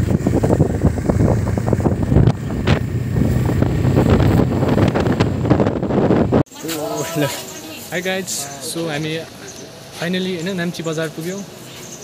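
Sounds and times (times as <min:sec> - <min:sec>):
motorcycle engine running: 0:00.0 - 0:06.4
wind buffeting microphone: 0:00.0 - 0:06.5.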